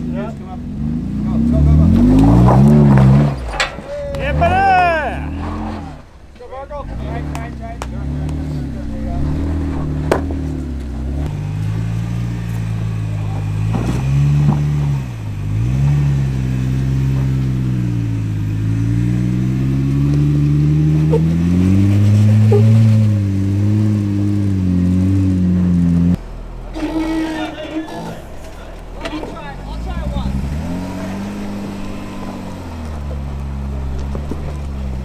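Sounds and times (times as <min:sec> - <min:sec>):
car engine revving: 0:00.0 - 0:35.0
sharp knocks: 0:09.7 - 0:10.6.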